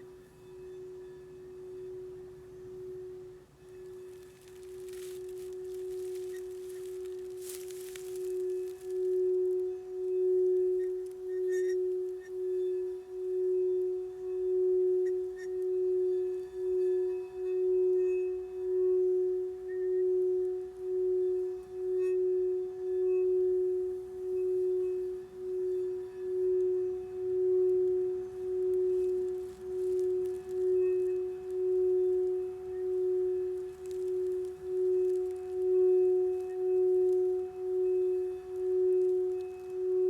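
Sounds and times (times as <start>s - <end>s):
singing bowl tone: 0.0s - 40.0s.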